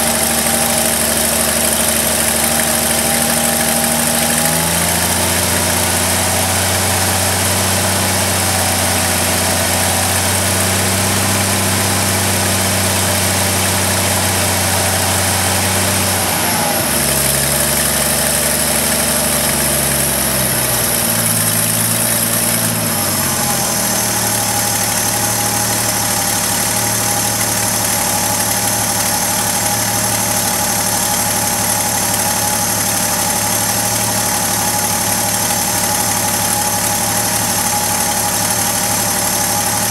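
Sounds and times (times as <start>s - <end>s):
pickup engine idling: 0.0s - 39.9s.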